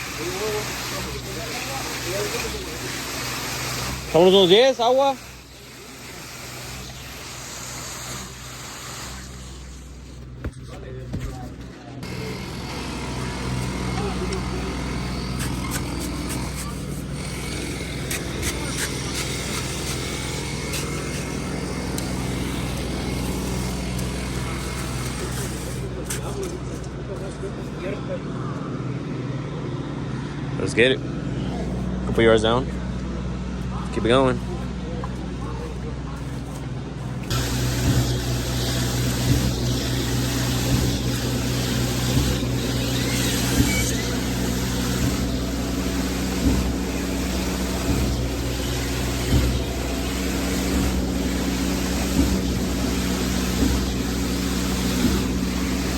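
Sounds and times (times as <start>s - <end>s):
heavy diesel engine running: 11.9s - 55.9s
pump knocking: 37.3s - 55.9s.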